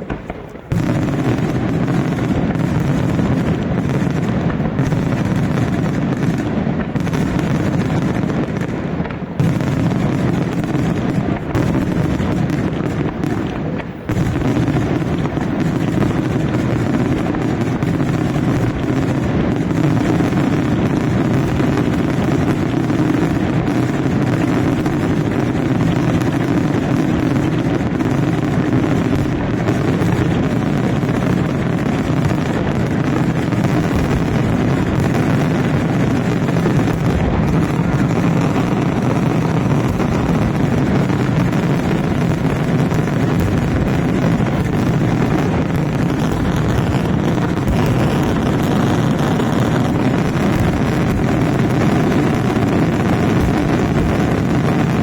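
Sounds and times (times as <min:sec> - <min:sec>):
fireworks barrage: 0:00.0 - 0:55.0.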